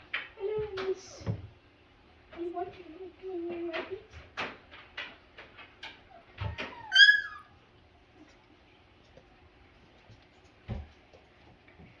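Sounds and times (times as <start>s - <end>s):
puppy yelping: 6.1s - 7.6s.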